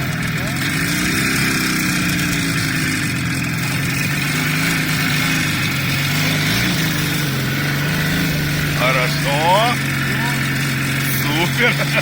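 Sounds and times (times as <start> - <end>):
car engine running: 0.0 - 12.0
steady rushing noise: 3.9 - 12.0.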